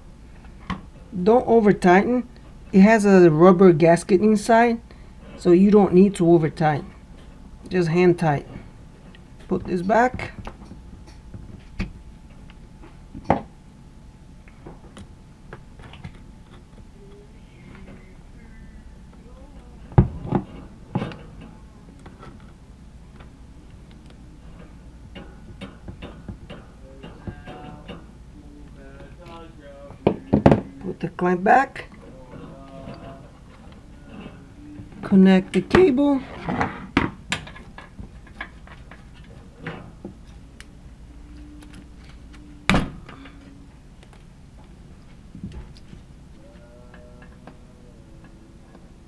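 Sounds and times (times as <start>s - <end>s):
parts clicking and tapping: 19.9s - 31.2s.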